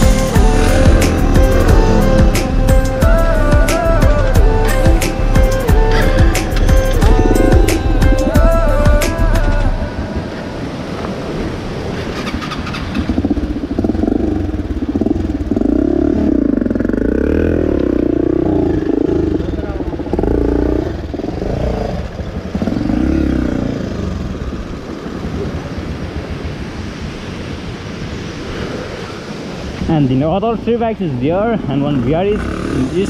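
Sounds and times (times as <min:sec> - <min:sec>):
motorcycle engine revving: 0:00.0 - 0:09.8, 0:11.9 - 0:25.8, 0:31.6 - 0:33.0.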